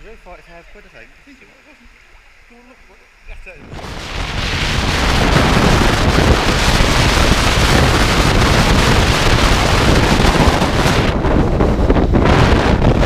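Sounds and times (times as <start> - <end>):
wind rushing over microphone: 3.3 - 13.0.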